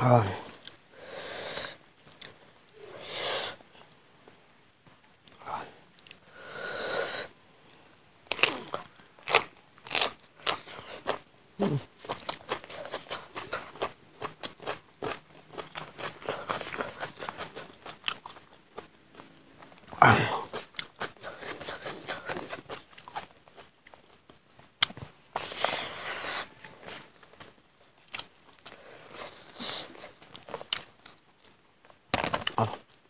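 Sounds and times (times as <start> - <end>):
person chewing and crunching: 7.6 - 33.0.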